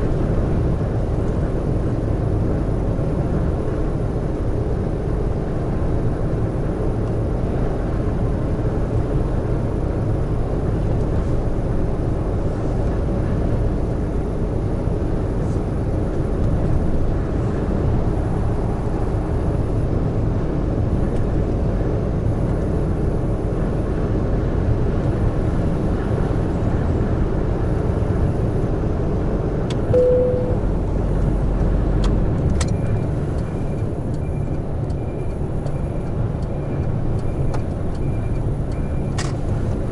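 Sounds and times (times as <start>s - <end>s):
truck engine and road noise: 0.0s - 39.9s
short beep: 29.9s - 30.7s.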